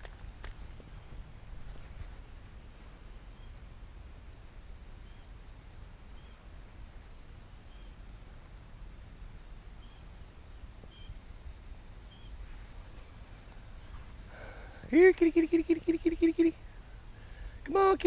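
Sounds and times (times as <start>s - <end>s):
steady high hiss: 0.0s - 18.0s
small bird chirping: 3.3s - 3.6s, 5.0s - 5.4s, 6.1s - 6.5s, 7.5s - 8.0s, 9.7s - 11.2s, 12.0s - 12.4s, 13.7s - 14.2s.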